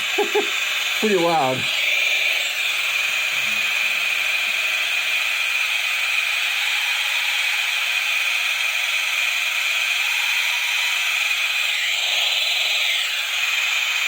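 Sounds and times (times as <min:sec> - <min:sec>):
harsh radio speaker hiss: 0:00.2 - 0:01.7.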